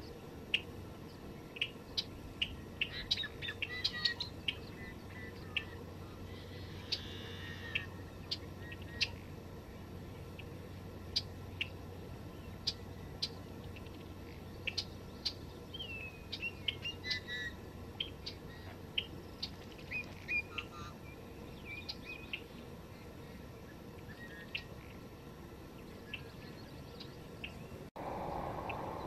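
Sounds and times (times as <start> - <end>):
steady low background hiss: 0.0 - 29.0
wild birds chirping: 0.0 - 29.0
whistled bird notes: 27.4 - 29.0.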